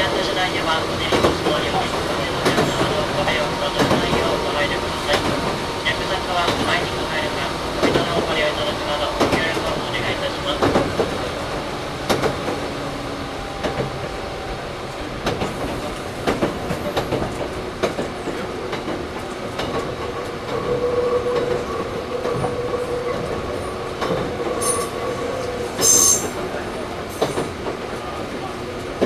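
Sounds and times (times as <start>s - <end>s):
train running rumble: 0.0s - 29.0s
wheels clicking over rail joints: 0.2s - 12.6s
loud high squeal: 25.7s - 26.4s.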